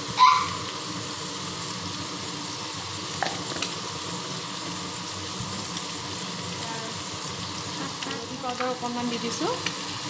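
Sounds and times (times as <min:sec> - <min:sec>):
meat sizzling in oil: 0:00.0 - 0:10.0.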